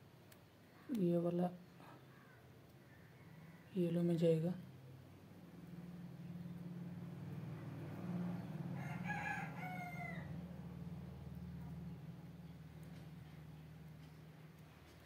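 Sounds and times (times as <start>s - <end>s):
rooster crowing: 2.9s - 3.7s, 8.4s - 10.6s.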